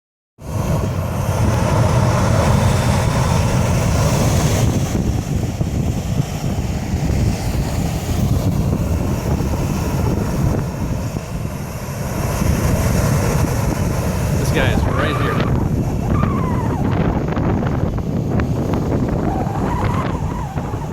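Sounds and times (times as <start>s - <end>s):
jet blast buffeting microphone: 0.4s - 20.9s
jet engines roaring: 0.4s - 20.9s.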